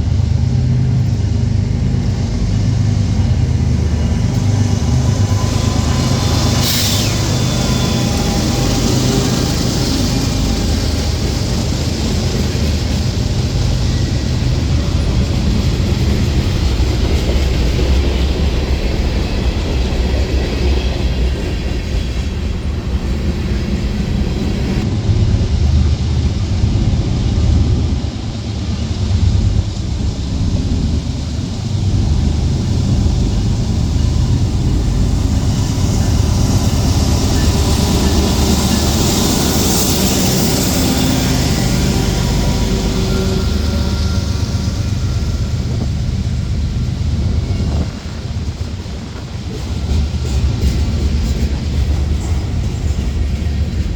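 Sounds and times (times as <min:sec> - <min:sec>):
train wheels rumbling on rail: 0:00.0 - 0:53.9
bright hiss: 0:02.6 - 0:16.3.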